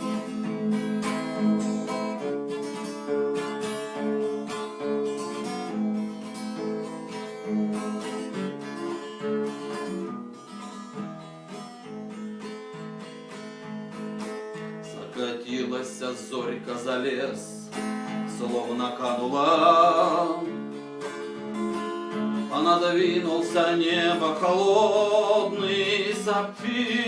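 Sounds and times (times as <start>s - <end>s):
acoustic guitar strumming chords: 0.0s - 27.0s.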